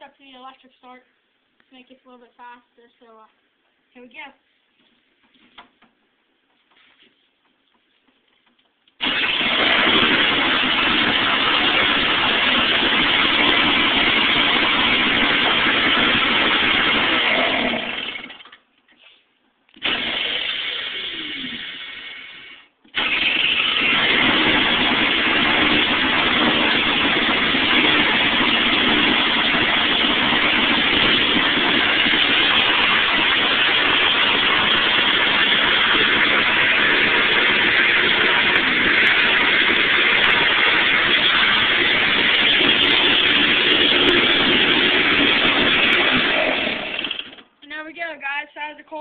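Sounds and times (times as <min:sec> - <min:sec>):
snowblower engine starting and running: 0:09.0 - 0:18.6, 0:19.8 - 0:47.5.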